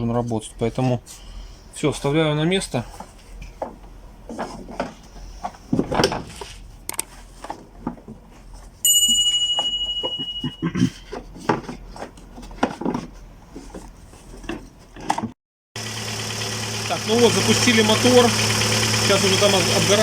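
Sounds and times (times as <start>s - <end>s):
sharp ringing metal clang: 8.9s - 10.6s.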